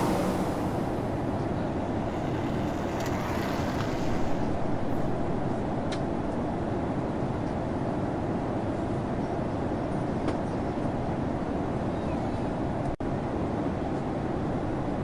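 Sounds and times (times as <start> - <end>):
airliner cabin engine rumble: 0.0 - 5.3.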